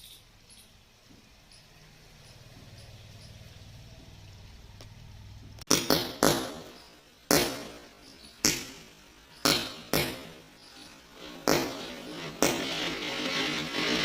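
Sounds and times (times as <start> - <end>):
firecracker pops with hiss: 5.6 - 10.5, 11.4 - 12.6.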